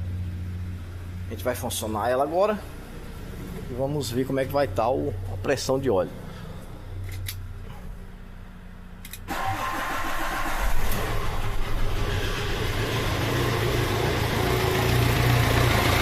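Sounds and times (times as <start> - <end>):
van engine starting and running: 0.0 - 16.0.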